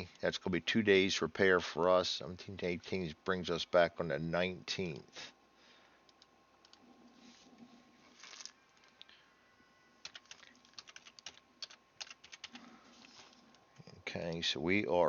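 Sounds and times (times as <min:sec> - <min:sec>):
typing on computer keyboard: 0:10.0 - 0:12.7.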